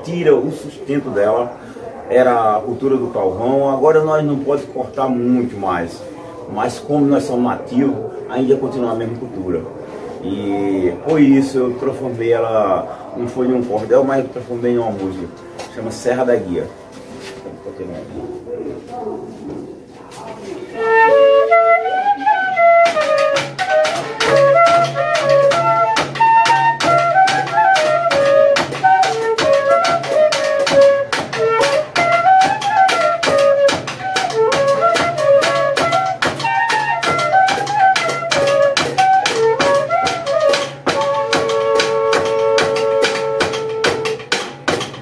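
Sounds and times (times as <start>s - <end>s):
fifes playing melody: 20.7s - 45.0s.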